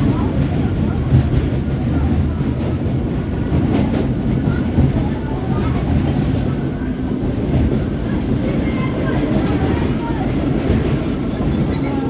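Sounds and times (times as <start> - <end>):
subway train rumbling on rails: 0.0 - 12.0
train wheels knocking: 0.0 - 12.0.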